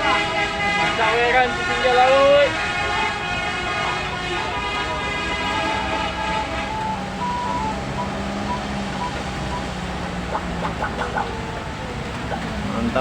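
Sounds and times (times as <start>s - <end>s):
horn-like tone: 0.0s - 9.8s
road and rain noise: 0.0s - 13.0s
vehicle engines droning: 0.0s - 13.0s.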